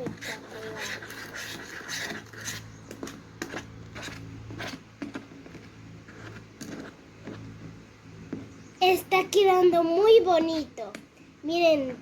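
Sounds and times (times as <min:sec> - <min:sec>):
spoon stirring slime: 0:00.0 - 0:07.8
steady low hum: 0:00.0 - 0:12.0.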